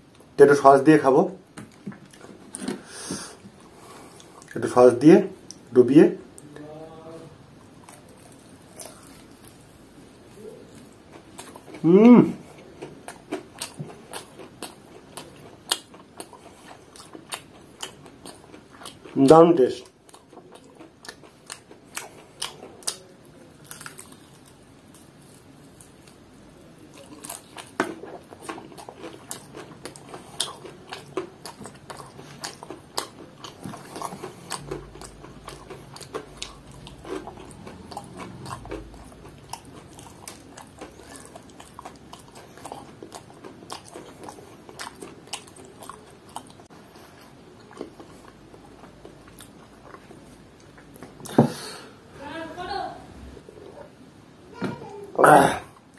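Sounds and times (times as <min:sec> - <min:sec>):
person chewing crispy chicken: 0:07.8 - 0:19.2, 0:19.8 - 0:26.2, 0:26.8 - 0:51.0.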